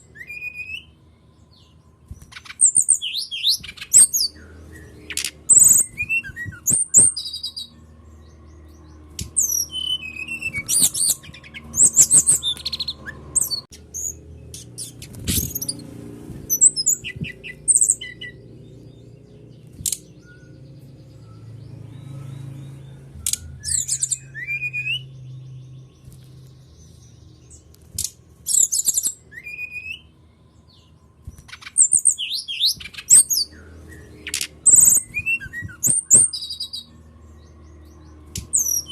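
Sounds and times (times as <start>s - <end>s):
songbird chirping and whistling: 0.0s - 38.9s.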